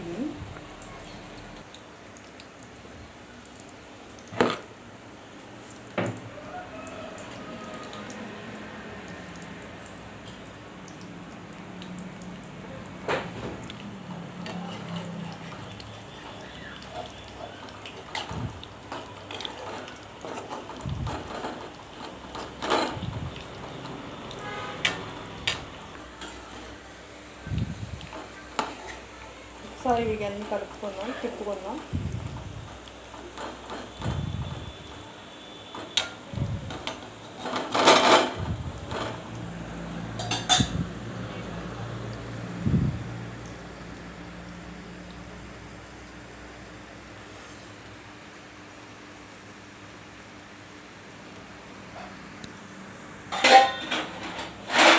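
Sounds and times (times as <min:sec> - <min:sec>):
food deep-frying in oil: 0:00.0 - 0:54.9
metal spoon scraping a pan: 0:53.3 - 0:54.9.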